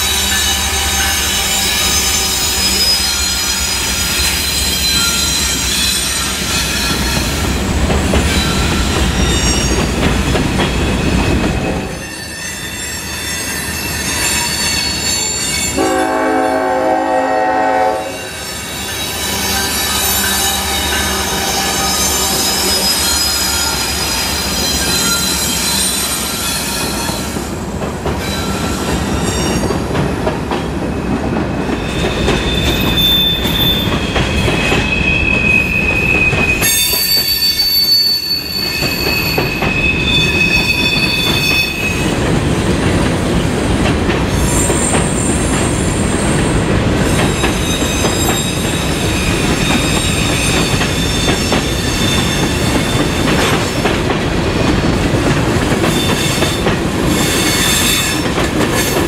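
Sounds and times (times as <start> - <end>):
high-pitched wheel squeal: 0.0 - 7.5, 18.0 - 27.3, 31.8 - 42.0
freight train wheels rumbling on rails: 0.0 - 59.0.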